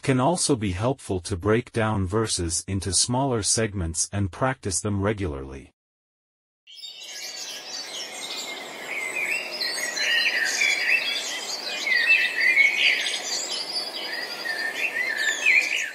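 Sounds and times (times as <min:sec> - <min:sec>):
songbirds chirping and singing: 0:06.7 - 0:15.9.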